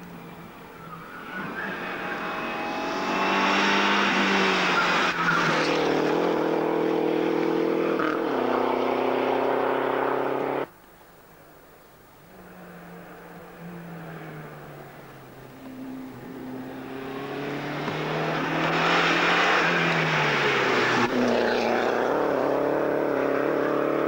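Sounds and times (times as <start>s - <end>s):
distant rally car approaching: 0.0s - 10.7s, 12.3s - 24.0s
rally car engine revving past: 1.2s - 10.7s, 15.7s - 24.0s.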